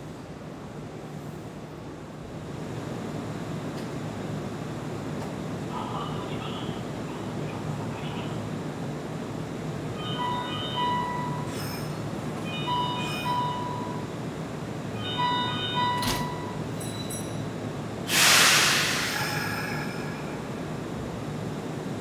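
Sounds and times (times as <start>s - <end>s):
air brakes hissing: 11.4s - 12.0s, 18.1s - 20.5s.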